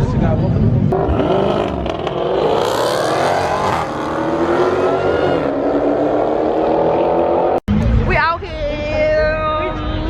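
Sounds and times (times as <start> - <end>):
car engine revving: 0.9 - 7.8.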